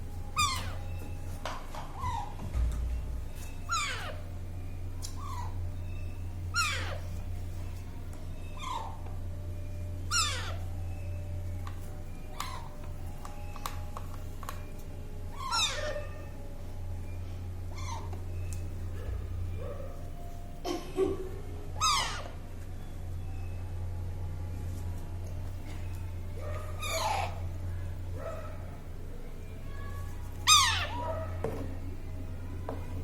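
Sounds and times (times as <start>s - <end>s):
steady low hum: 0.0s - 33.0s
baby parrot squawking: 0.4s - 0.9s, 3.7s - 4.2s, 5.1s - 7.2s, 8.4s - 9.0s, 10.1s - 10.6s, 12.4s - 12.7s, 15.3s - 16.2s, 17.7s - 18.1s, 21.8s - 22.3s, 26.7s - 27.5s, 30.4s - 31.2s.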